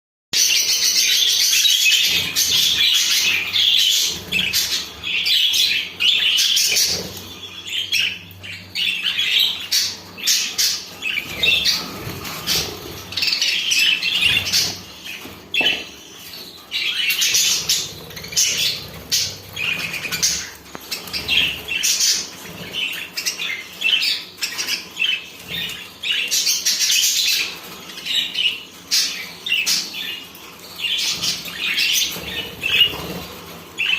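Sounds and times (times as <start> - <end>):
small birds chirping and squawking: 0.4 - 33.9
wings fluttering: 10.6 - 15.7.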